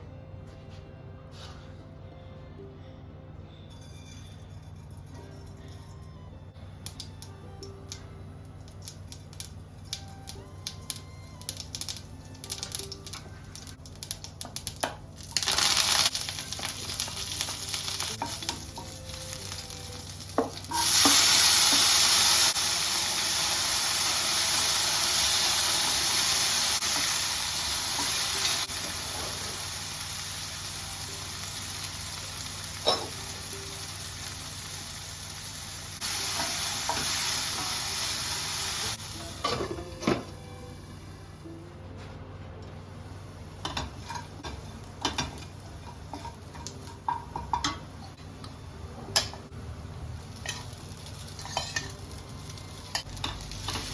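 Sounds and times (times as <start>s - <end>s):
food sizzling in hot oil: 10.7s - 39.5s, 50.1s - 53.9s.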